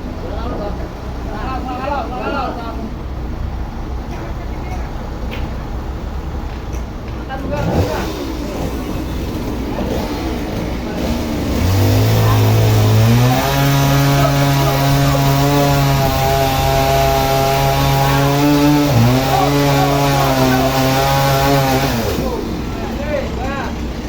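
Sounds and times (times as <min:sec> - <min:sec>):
motor-driven saw revving: 0:07.6 - 0:24.0.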